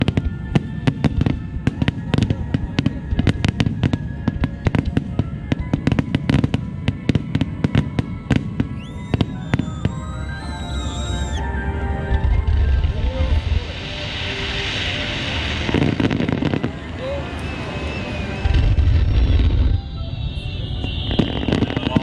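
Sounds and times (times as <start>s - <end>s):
fireworks bangs and crackles: 0.0s - 11.5s, 12.1s - 22.0s
high whistling tone: 8.0s - 22.0s
low rumble: 8.8s - 20.6s.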